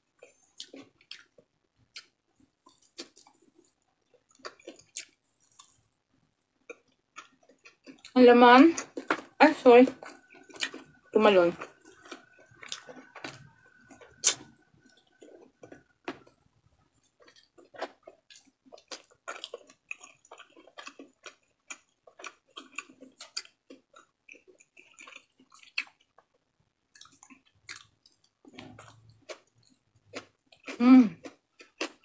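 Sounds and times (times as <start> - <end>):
chewing and lip smacking: 0.2 - 5.9, 6.6 - 8.2, 8.8 - 16.4, 17.0 - 32.0.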